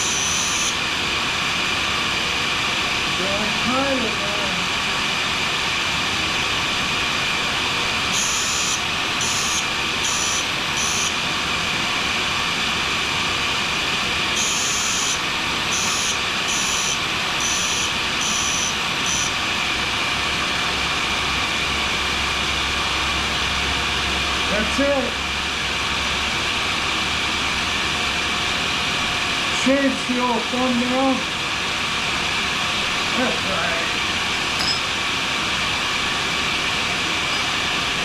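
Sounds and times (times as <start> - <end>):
grinder running: 0.0 - 0.9, 7.2 - 12.0, 13.5 - 19.8
high-pitched hiss of blade sharpening: 8.2 - 11.1, 14.4 - 15.2, 15.8 - 19.3.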